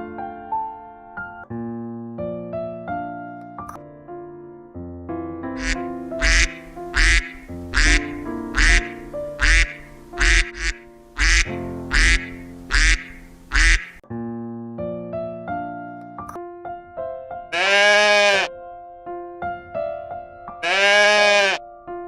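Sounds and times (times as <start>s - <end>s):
background music with piano notes: 0.0s - 22.0s
duck quacking: 5.6s - 14.0s, 17.5s - 18.5s, 20.6s - 21.6s.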